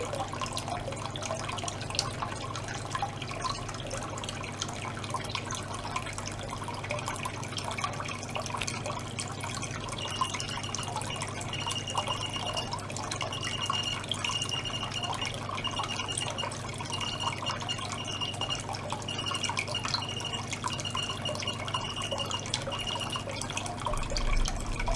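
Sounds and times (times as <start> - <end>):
pump humming: 0.0 - 24.9
water dripping and trickling: 0.0 - 24.9
high-pitched tone: 10.0 - 24.9.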